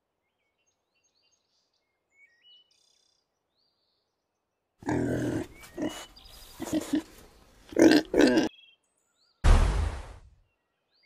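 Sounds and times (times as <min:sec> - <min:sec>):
loud rough low sound: 0:09.4 - 0:10.3.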